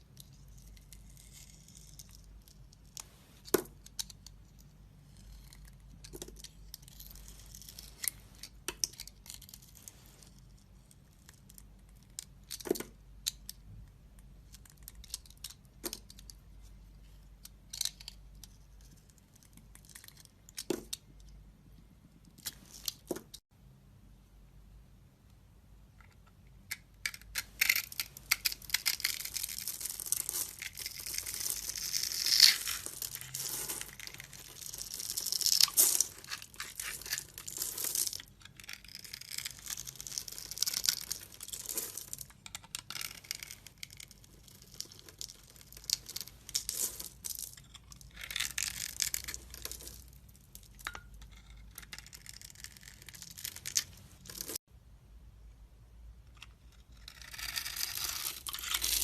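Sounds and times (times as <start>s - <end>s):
knife scraping dry soap: 0.2s - 2.2s, 50.8s - 53.8s, 56.4s - 59.0s.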